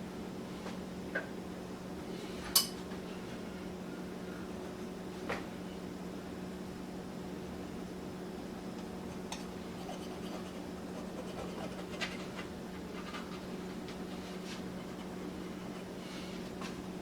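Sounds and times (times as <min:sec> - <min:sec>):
steady low hum: 0:00.0 - 0:17.0
light scratches and taps: 0:09.3 - 0:15.9.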